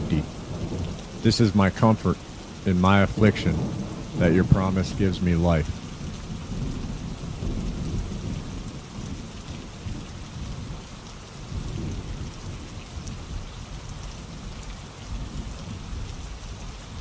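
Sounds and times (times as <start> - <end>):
thunder rumbling: 0.0 - 13.5
rainfall hiss: 0.0 - 17.0.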